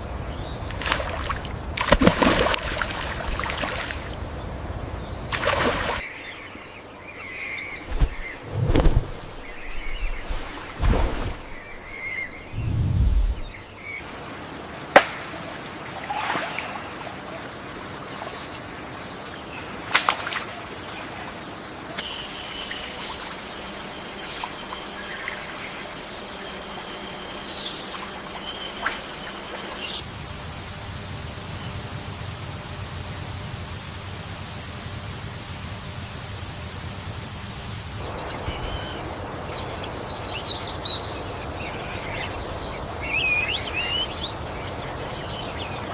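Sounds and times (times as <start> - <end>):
high-pitched insect drone: 22.0 - 39.1.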